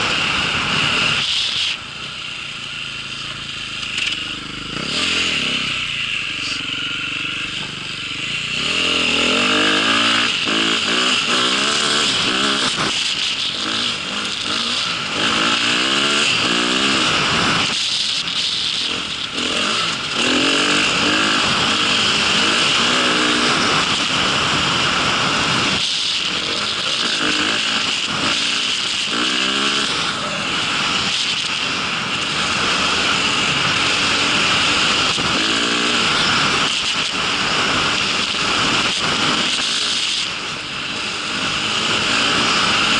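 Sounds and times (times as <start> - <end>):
small vehicle engine revving: 0.0 - 42.9.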